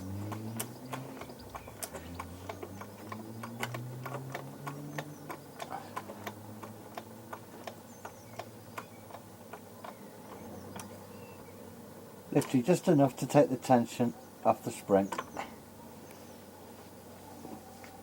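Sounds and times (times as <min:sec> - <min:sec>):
jack clicking: 0:00.0 - 0:11.0.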